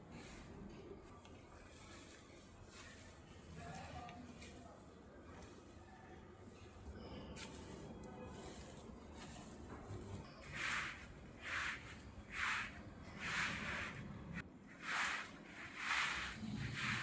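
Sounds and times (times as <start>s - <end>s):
brushing swishes: 7.4s - 17.0s.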